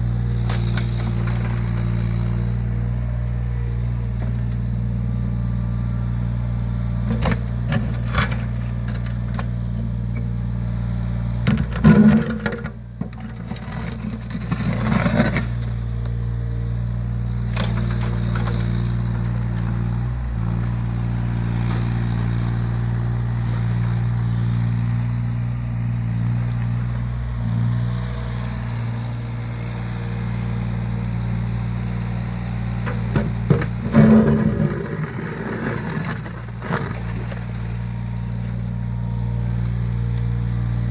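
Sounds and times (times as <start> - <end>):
excavator diesel engine running: 0.0 - 40.9
metal clanks and scrapes: 11.5 - 15.5, 32.8 - 37.5.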